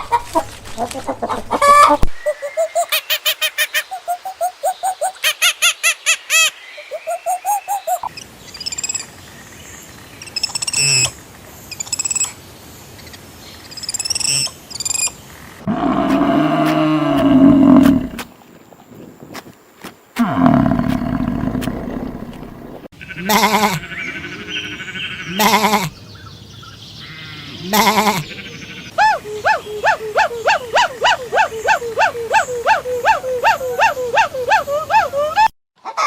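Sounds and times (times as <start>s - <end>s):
low roar-like animal calls: 15.6s - 18.3s, 20.2s - 25.9s
animal bleating: 20.2s - 26.0s, 27.0s - 28.9s.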